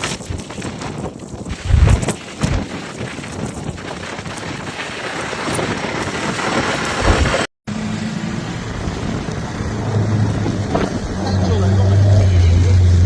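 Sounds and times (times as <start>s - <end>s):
strong wind on microphone: 0.0s - 7.5s
low thumps: 1.5s - 2.8s
vehicle engine humming: 7.7s - 13.0s.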